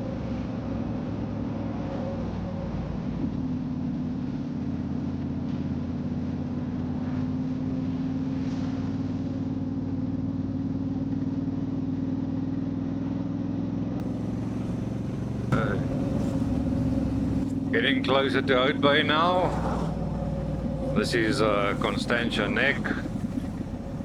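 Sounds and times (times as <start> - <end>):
motorcycle engine cruising: 14.0 - 24.0.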